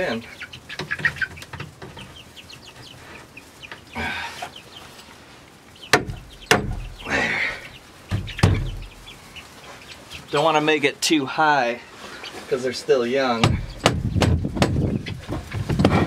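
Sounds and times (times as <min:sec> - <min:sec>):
chicks peeping and clucking: 0:00.0 - 0:16.0
sharp knocks: 0:05.9 - 0:07.0, 0:08.1 - 0:08.8, 0:13.4 - 0:16.0.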